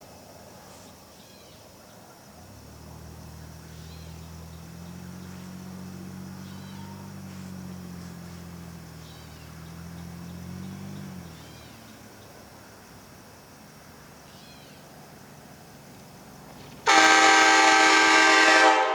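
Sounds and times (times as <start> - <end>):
faint short chirping calls: 3.2 - 12.4, 14.2 - 15.0
distant train horn chord: 16.8 - 18.9.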